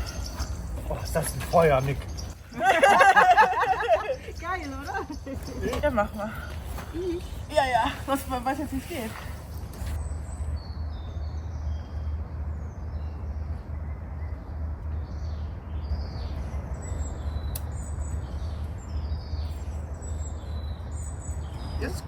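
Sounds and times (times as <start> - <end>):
birds chirping and calling: 0.0 - 10.9, 15.3 - 22.0.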